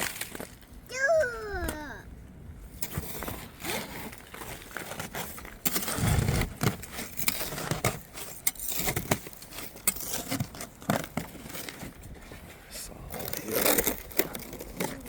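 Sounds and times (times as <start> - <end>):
ice scraping and cracking: 0.0 - 0.7, 2.8 - 15.0
dull low thud: 6.0 - 6.8.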